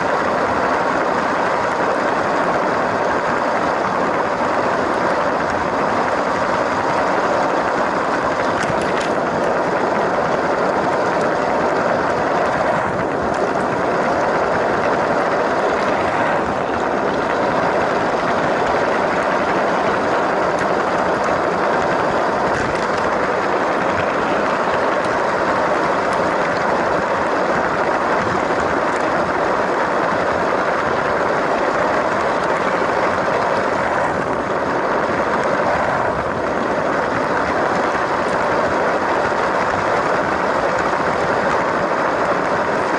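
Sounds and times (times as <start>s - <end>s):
toy train wheels rolling on track: 0.0s - 42.9s.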